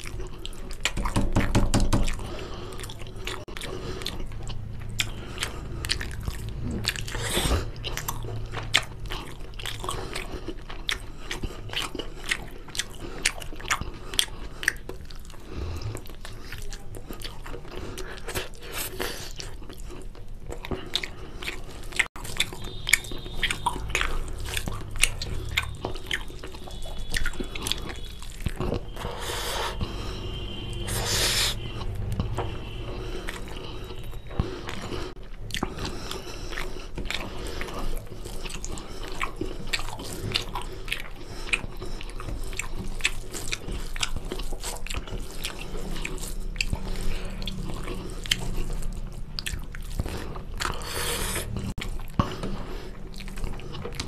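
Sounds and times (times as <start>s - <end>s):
person chewing food: 0.0s - 54.0s
wet mouth clicks and smacks: 22.0s - 29.1s.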